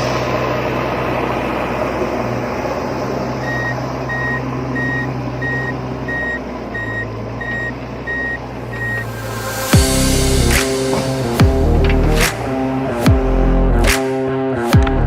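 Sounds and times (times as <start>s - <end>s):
steady low hum: 0.0s - 14.0s
short electronic reversing beeps: 3.4s - 11.2s.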